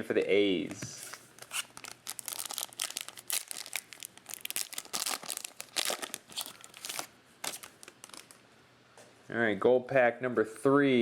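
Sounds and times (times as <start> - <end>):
card pack wrapper crinkling: 1.0 - 8.4.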